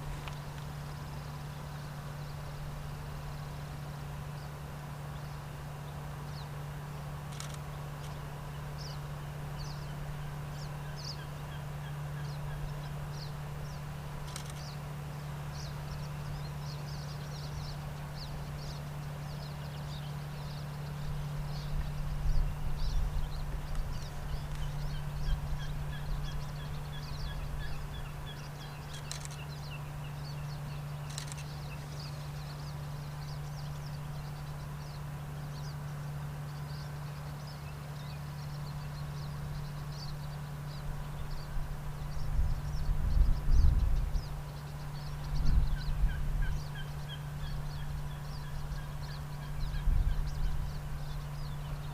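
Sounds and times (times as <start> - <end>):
steady low hum: 0.0 - 51.9
high bird chirps: 22.8 - 34.8
wind gusting on microphone: 41.4 - 44.5, 45.2 - 46.8, 49.6 - 51.2.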